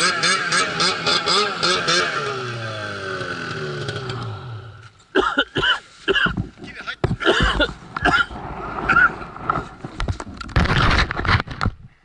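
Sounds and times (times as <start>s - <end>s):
snowmobile engine revving: 0.0s - 4.8s.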